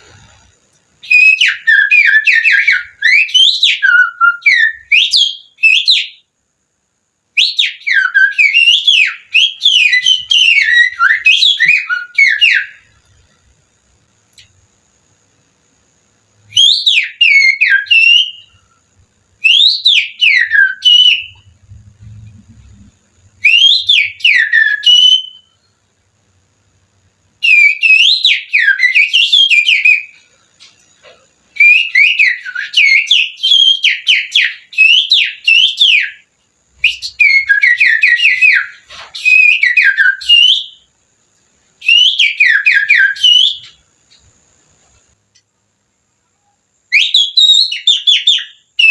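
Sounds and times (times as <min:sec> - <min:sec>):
person finger-whistling birdsong: 0:01.0 - 0:06.2, 0:19.4 - 0:25.6, 0:36.8 - 0:40.8.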